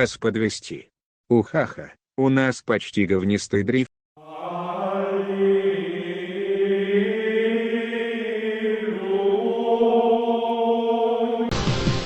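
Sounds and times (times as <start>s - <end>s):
chant-like drone: 4.2s - 11.6s.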